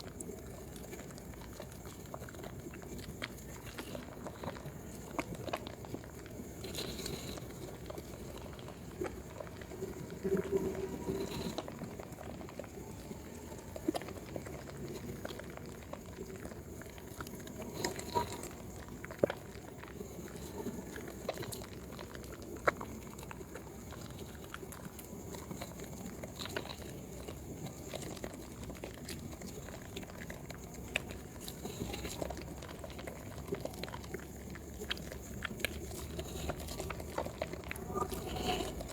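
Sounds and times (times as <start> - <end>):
wet soap squishing: 0.0 - 38.9.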